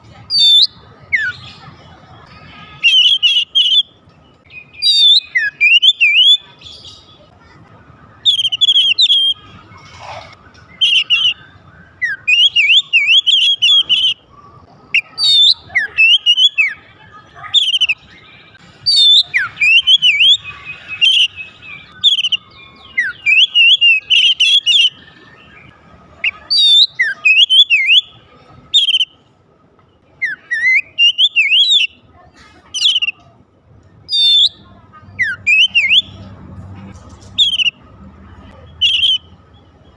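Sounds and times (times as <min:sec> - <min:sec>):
bird singing whistled phrases: 0:00.3 - 0:01.5, 0:02.7 - 0:07.1, 0:08.2 - 0:09.4, 0:10.6 - 0:14.2, 0:14.9 - 0:16.9, 0:17.5 - 0:28.1, 0:28.7 - 0:29.2, 0:30.2 - 0:32.0, 0:32.8 - 0:33.2, 0:34.1 - 0:36.2, 0:37.4 - 0:37.8, 0:38.6 - 0:39.3.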